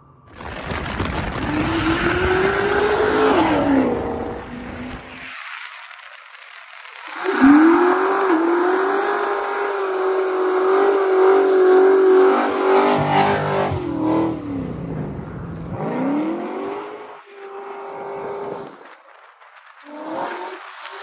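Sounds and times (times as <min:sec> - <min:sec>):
car engine revving high: 0:07.4 - 0:18.7.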